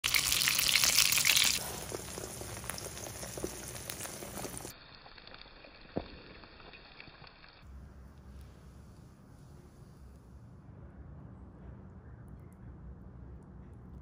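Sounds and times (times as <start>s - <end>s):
egg frying in hot oil: 0.0s - 7.6s
oil crackles and pops: 0.0s - 7.7s.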